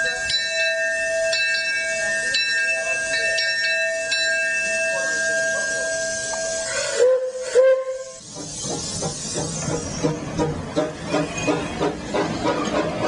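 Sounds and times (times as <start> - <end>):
steam locomotive bell ringing: 0.0 - 10.2.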